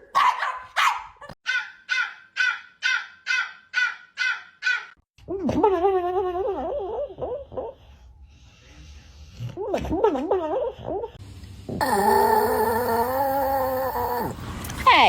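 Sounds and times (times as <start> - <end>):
dog barking harshly: 0.0 - 4.9
dog howling: 11.8 - 14.4.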